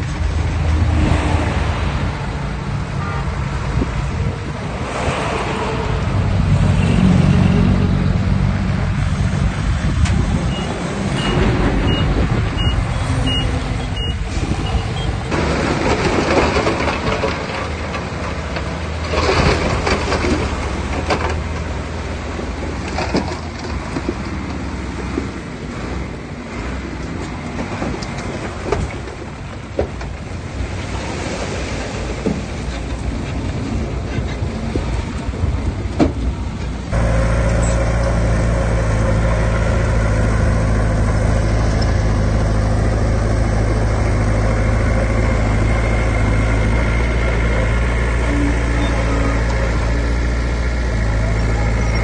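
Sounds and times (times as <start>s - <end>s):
heavy equipment diesel engines: 0.0s - 52.0s
reversing alarm beeping: 10.5s - 15.1s.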